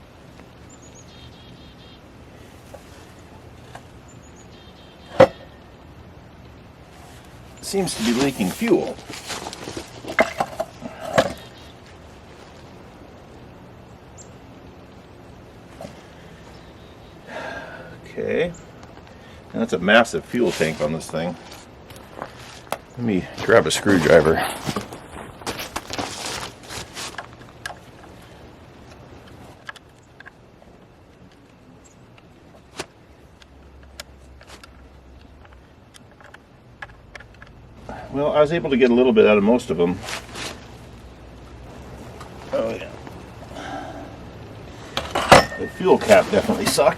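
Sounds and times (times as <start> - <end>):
low background noise: 0.0 - 46.9
handling knocks and clatters: 7.0 - 11.6, 20.4 - 28.2, 44.8 - 46.9.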